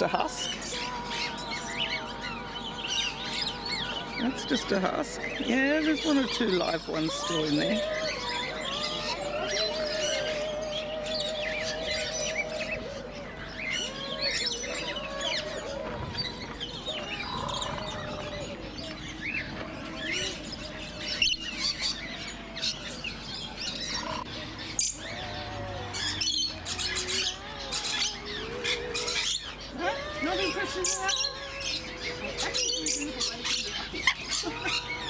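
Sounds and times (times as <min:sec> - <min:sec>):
low wavering bird call: 0:00.0 - 0:22.2
small birds chirping: 0:00.0 - 0:35.0.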